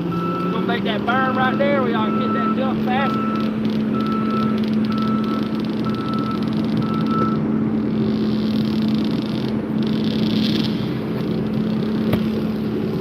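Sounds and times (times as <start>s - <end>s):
vehicle engine idling: 0.0s - 13.0s
short electronic beeps: 0.1s - 7.5s.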